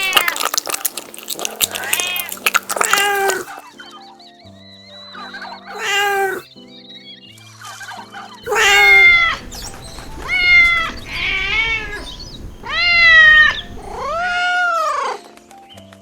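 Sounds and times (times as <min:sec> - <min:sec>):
kitten meowing: 0:00.0 - 0:00.7, 0:01.6 - 0:03.6, 0:05.7 - 0:06.5, 0:08.5 - 0:14.8.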